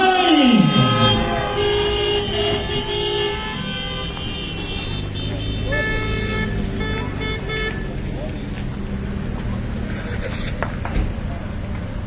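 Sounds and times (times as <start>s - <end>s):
horns blasting: 0.0s - 8.5s
crowd noise: 0.0s - 12.0s
street noise: 0.0s - 12.0s.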